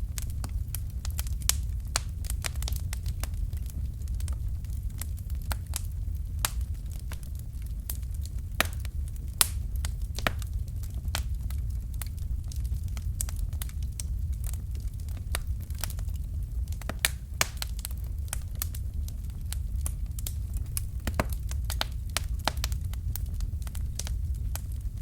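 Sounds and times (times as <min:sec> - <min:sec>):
fire crackling and popping: 0:00.0 - 0:25.0
low rumble of fire: 0:00.0 - 0:25.0.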